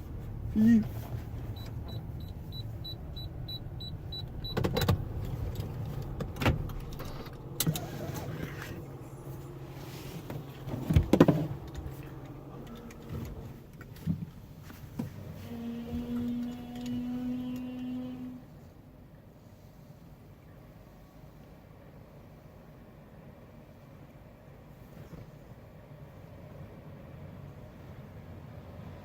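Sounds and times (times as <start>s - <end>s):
car engine idling hum: 0.0s - 29.0s.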